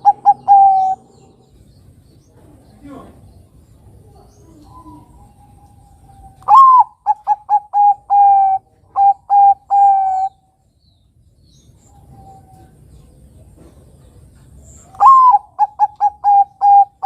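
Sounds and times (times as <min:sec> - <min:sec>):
dove cooing: 0:00.0 - 0:01.6, 0:04.0 - 0:10.4, 0:14.8 - 0:17.0.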